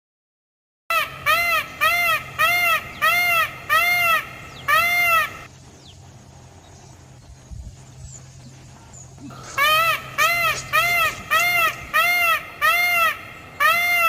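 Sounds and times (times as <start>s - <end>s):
peacock honking calls: 0.9s - 5.5s, 9.1s - 14.0s.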